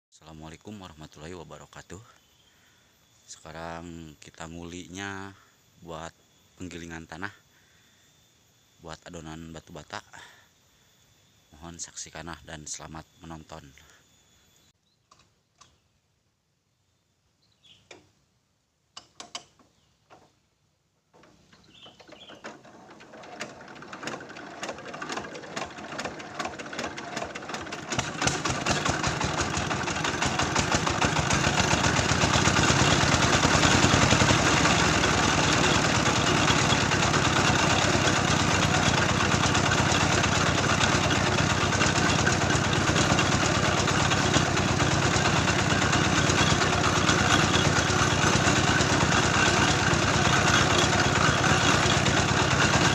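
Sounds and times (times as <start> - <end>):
mill engine chugging: 21.7 - 52.9.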